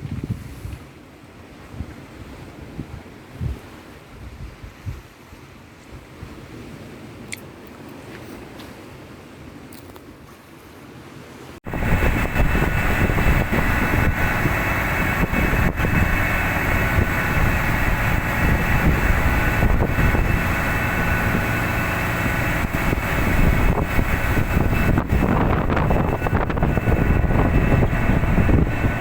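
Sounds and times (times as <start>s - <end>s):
tugboat engine drone: 11.6s - 29.0s
faint high whine: 11.7s - 29.0s.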